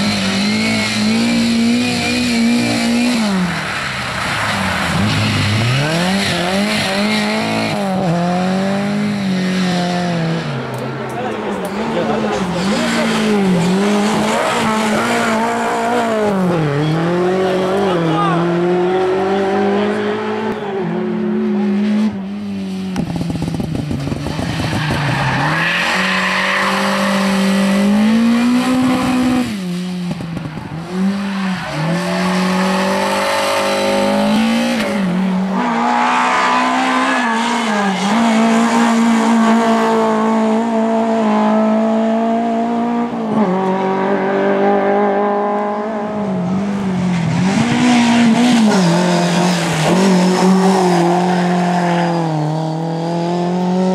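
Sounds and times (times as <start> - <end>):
rally car engines revving: 0.0 - 53.9.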